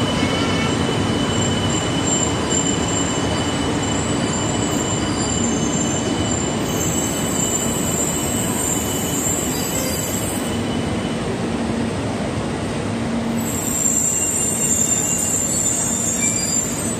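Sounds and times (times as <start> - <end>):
train rumbling into platform: 0.0 - 16.9
thin high-pitched squeal: 13.5 - 16.9.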